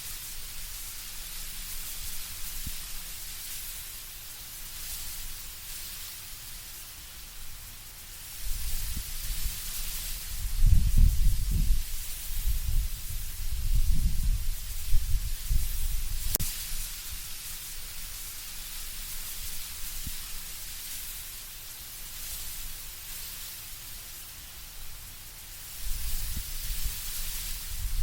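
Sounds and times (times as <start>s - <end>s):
leaves rustling in wind: 0.0s - 28.0s
low rumbling wind gusts: 10.2s - 16.4s, 27.6s - 28.0s.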